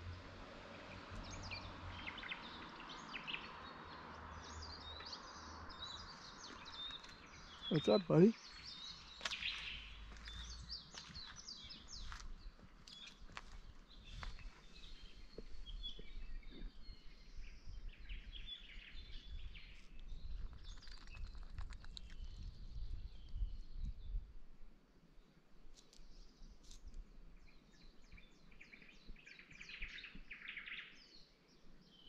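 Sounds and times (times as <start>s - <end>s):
birds chirping: 0.0s - 24.2s.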